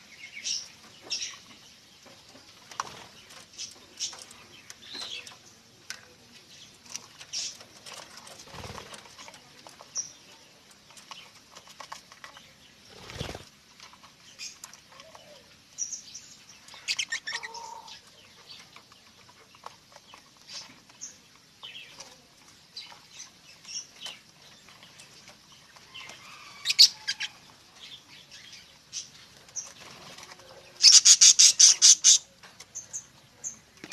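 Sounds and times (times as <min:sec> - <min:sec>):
wings fluttering: 0:07.4 - 0:09.4, 0:12.9 - 0:13.6
budgerigars chirping: 0:16.8 - 0:17.9, 0:30.8 - 0:32.3.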